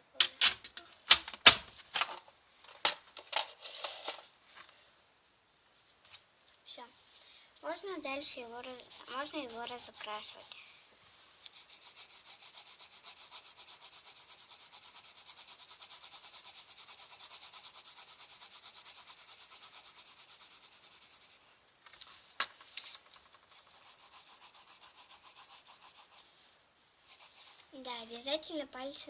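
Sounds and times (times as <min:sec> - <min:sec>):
colouring strokes on paper: 0:07.0 - 0:21.5, 0:23.4 - 0:28.3.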